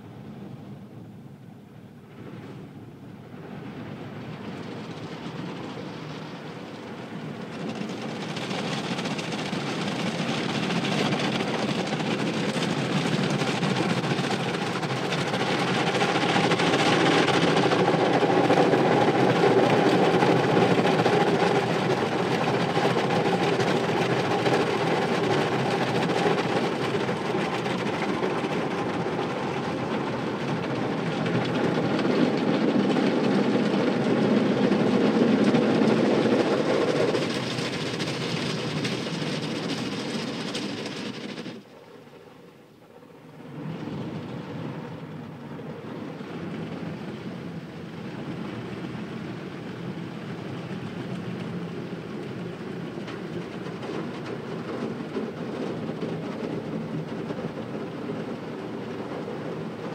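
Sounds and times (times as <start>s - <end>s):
car wash machinery rumbling: 3.8s - 41.6s.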